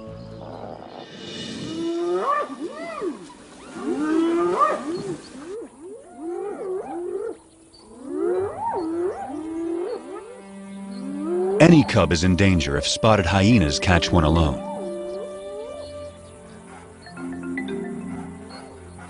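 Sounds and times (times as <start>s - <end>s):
hyenas whooping: 0.3s - 10.3s.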